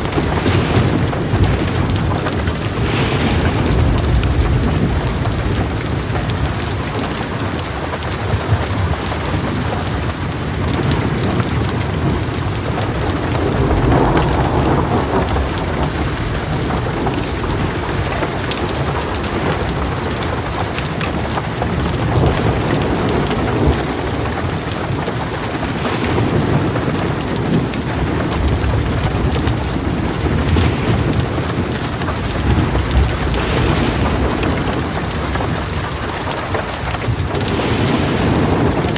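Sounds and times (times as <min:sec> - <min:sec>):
heavy rain on a metal roof: 0:00.0 - 0:38.9
thunder rumbling: 0:00.0 - 0:38.9.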